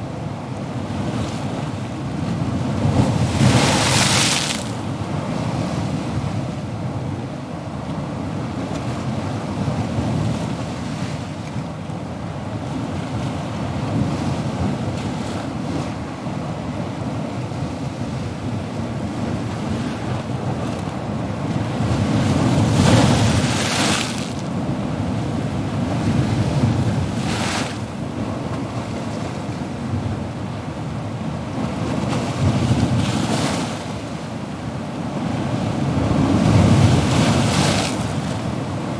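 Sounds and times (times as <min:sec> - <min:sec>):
low rumble of waves: 0:00.0 - 0:38.9
wave breaking and washing in: 0:02.4 - 0:06.0, 0:20.0 - 0:28.0, 0:31.7 - 0:38.9.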